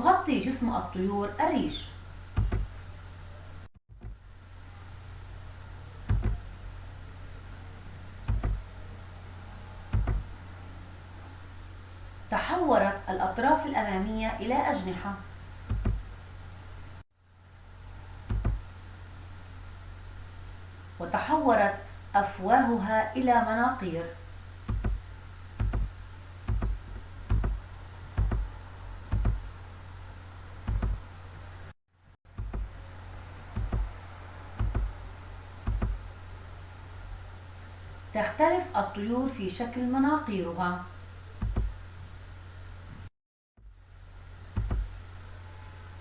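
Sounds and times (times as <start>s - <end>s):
steady low hum: 0.0s - 46.0s
low double thumps: 2.3s - 2.8s, 6.1s - 6.5s, 8.2s - 8.7s, 9.9s - 10.4s, 15.6s - 16.2s, 18.3s - 18.7s, 24.6s - 29.6s, 30.6s - 31.1s, 33.5s - 35.0s, 35.6s - 36.1s, 41.4s - 41.8s, 44.5s - 45.0s
short dull knocks: 2.4s - 2.8s, 6.1s - 6.5s, 8.3s - 8.7s, 9.9s - 10.3s, 15.7s - 16.1s, 18.3s - 18.7s, 24.7s - 29.5s, 30.7s - 31.1s, 32.3s - 32.8s, 33.5s - 34.0s, 34.6s - 35.0s, 35.6s - 36.0s, 41.4s - 41.8s, 44.6s - 45.0s.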